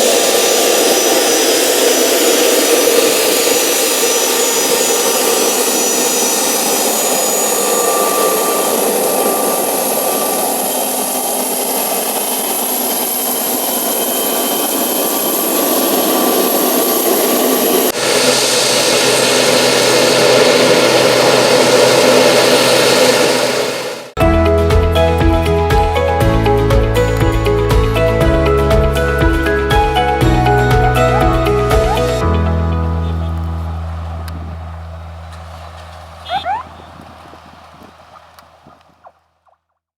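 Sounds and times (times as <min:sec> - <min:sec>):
thin whining tones: 0:00.0 - 0:17.9, 0:31.0 - 0:39.0
airplane engines roaring: 0:00.0 - 0:24.2, 0:30.9 - 0:39.0.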